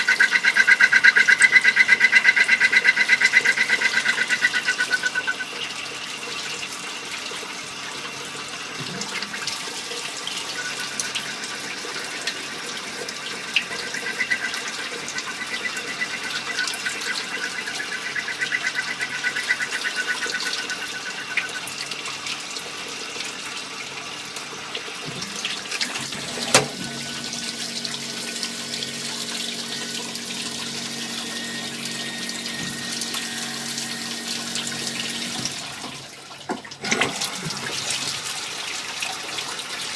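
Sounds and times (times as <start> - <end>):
coolant oil hissing: 25.6 - 36.0.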